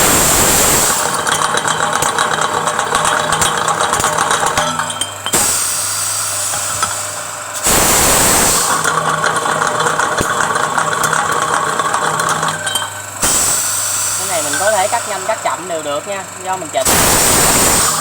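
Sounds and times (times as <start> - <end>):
pipe-cutting machine humming: 0.0 - 18.0
brief air hiss: 5.4 - 8.8, 13.2 - 14.4, 16.9 - 18.0
loud rushing air burst: 7.6 - 8.8, 16.9 - 18.0.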